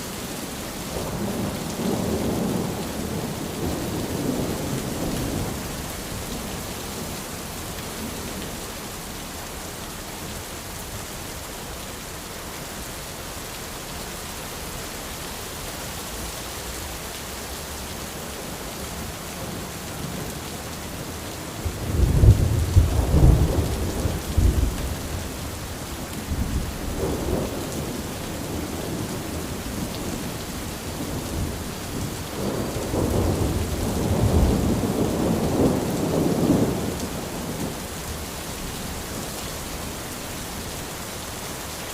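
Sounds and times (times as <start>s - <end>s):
rain on an umbrella: 0.0s - 41.9s
thunder rumbling: 21.6s - 37.8s.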